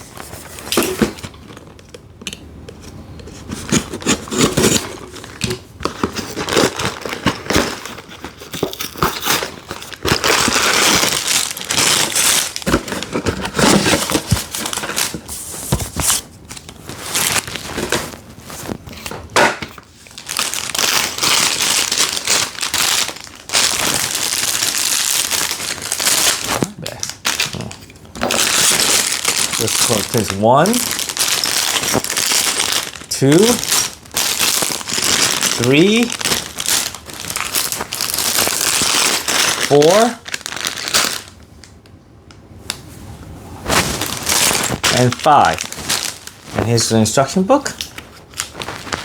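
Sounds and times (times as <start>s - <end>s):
cardboard box tearing: 3.6s - 5.3s, 5.9s - 15.2s
plastic bags crinkling: 3.6s - 41.7s, 43.6s - 49.0s.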